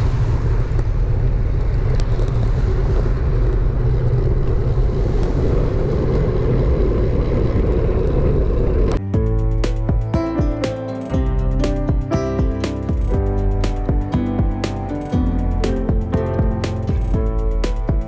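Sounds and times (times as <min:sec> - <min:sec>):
wind rushing over microphone: 0:00.0 - 0:09.0
guitar music: 0:09.0 - 0:18.0.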